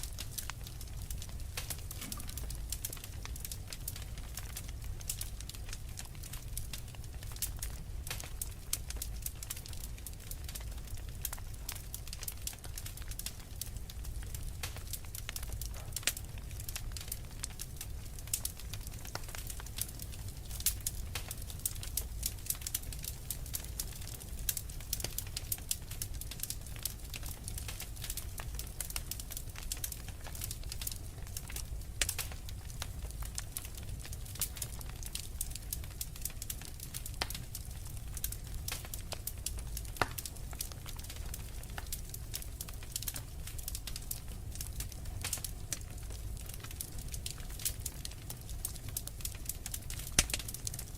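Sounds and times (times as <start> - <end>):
fire crackling and popping: 0.0 - 50.9.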